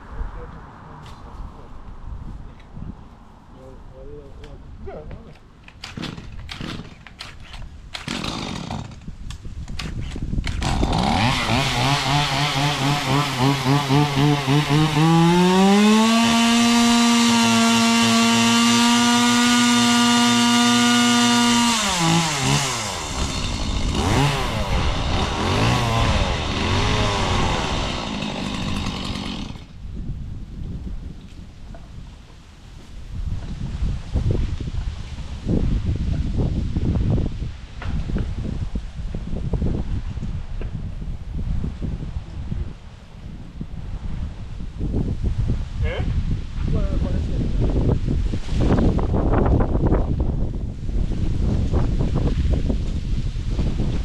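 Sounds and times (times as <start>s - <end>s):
chainsaw revving: 5.9s - 6.9s, 8.0s - 9.1s, 10.5s - 29.7s.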